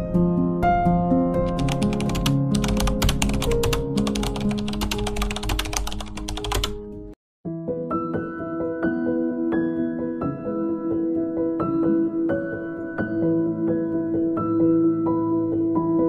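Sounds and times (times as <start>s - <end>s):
gentle background music: 0.0s - 16.0s
rapid typing key clicks: 1.5s - 6.8s.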